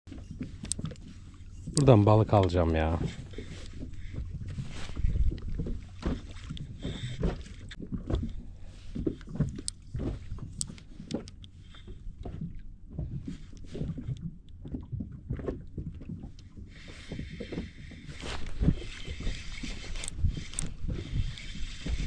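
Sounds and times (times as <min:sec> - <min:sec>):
water lapping against boat hull: 0:00.1 - 0:22.0.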